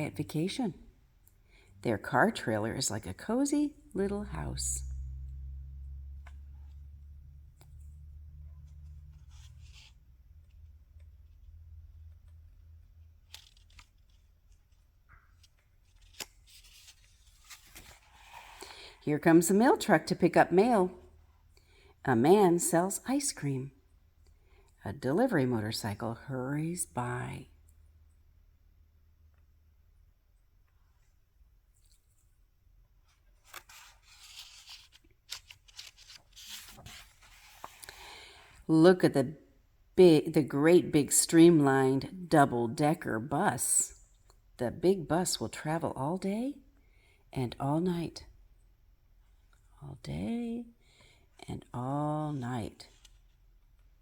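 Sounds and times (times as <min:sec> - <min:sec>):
low room hum: 0:00.0 - 0:54.0
paper rustling: 0:08.6 - 0:18.9, 0:33.0 - 0:38.3, 0:52.8 - 0:54.0.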